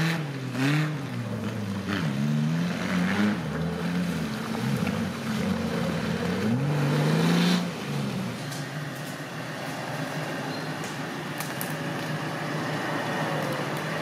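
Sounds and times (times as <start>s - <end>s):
engine revving: 0.0s - 10.4s.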